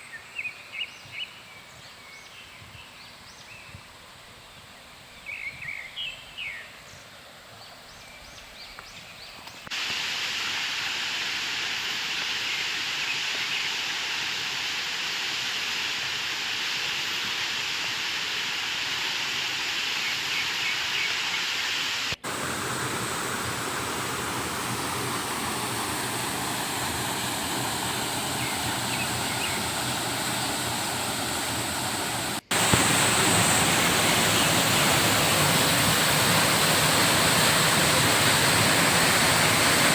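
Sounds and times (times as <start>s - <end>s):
waterfall rushing: 22.0s - 39.9s.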